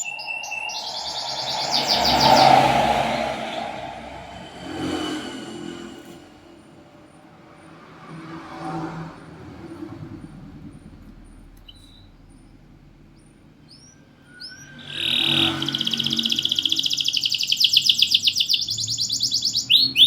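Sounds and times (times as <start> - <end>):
canary chirping and trilling: 0.0 - 2.2, 13.7 - 20.0
passing motor vehicle: 0.0 - 11.6, 14.7 - 17.3.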